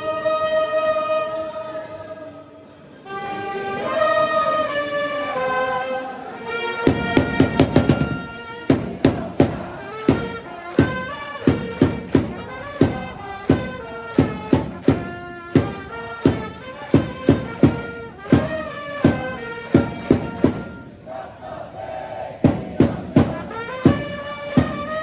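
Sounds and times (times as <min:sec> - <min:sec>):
trumpets playing cheer melody: 0:00.0 - 0:02.2, 0:02.9 - 0:22.2, 0:22.8 - 0:25.0
bass drum beats: 0:06.9 - 0:20.8, 0:22.4 - 0:25.0.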